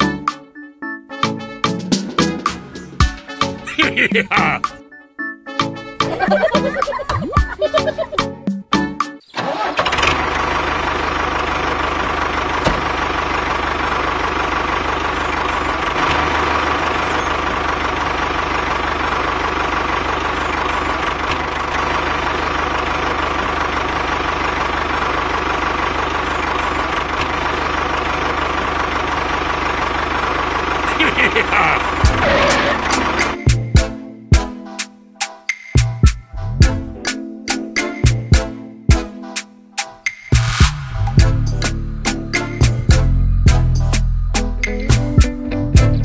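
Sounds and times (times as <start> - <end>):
tractor engine idling: 9.4 - 33.7.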